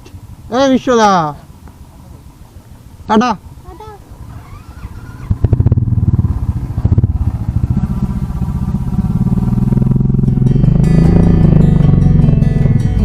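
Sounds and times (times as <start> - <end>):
motorcycle engine pulling away: 4.1 - 13.0.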